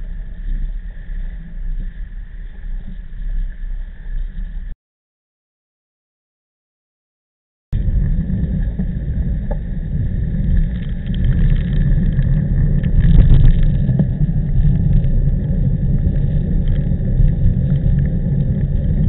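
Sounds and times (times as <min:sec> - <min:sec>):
wind buffeting microphone: 0:07.8 - 0:19.0.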